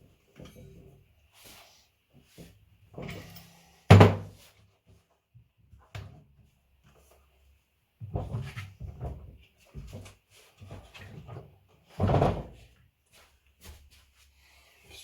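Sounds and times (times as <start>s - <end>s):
knocks and clatter of tools: 0.3s - 1.0s.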